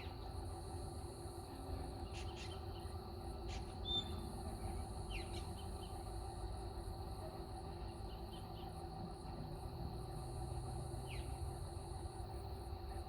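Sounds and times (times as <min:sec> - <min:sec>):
insect drone: 0:00.0 - 0:13.0.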